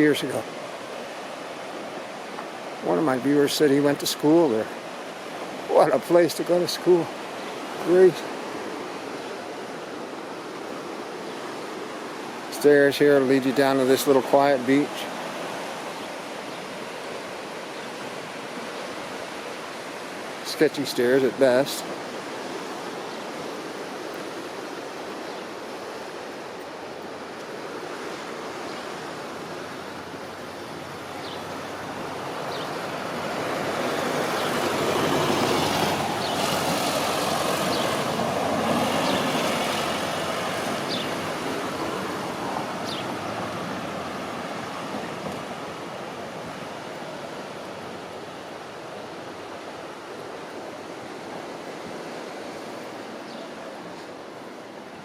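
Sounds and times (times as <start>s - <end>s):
surf: 0.0s - 55.0s
passing vehicles: 30.1s - 45.5s.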